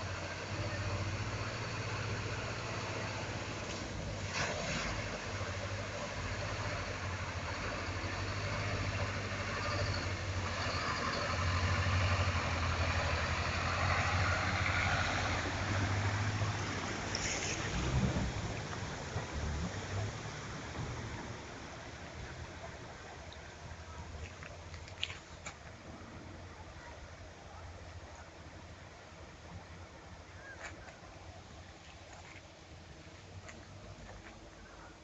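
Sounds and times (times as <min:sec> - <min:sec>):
rain hissing: 0:11.4 - 0:22.3.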